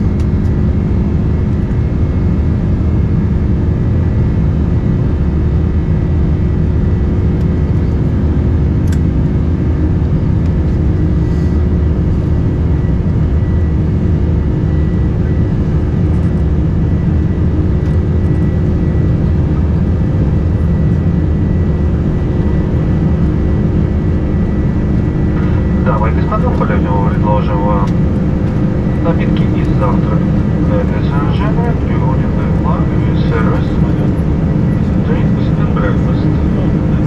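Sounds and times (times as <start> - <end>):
airplane cabin rush: 17.4 - 37.0
faint steady hum: 18.2 - 37.0.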